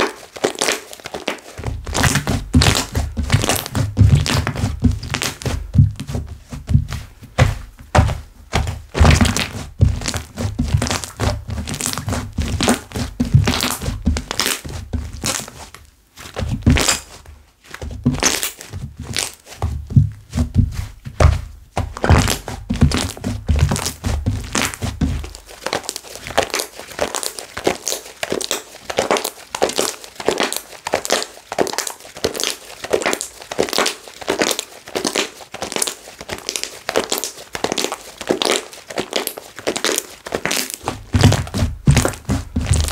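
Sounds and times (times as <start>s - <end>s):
slime squeezed by hand: 0.0s - 5.6s, 8.7s - 15.6s, 22.0s - 42.9s
soft low thumps: 1.7s - 15.2s, 18.8s - 25.4s, 40.9s - 42.9s.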